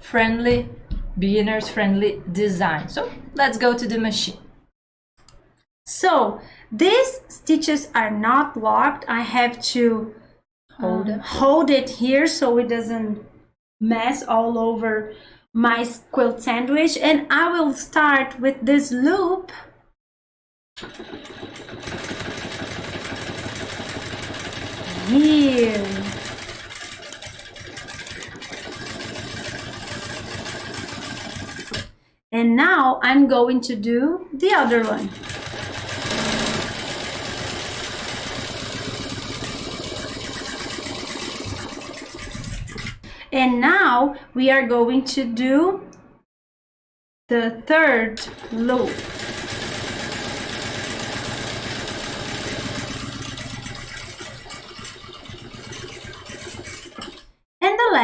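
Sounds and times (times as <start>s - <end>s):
sewing machine running: 20.8s - 32.0s, 34.6s - 42.8s, 48.2s - 57.3s.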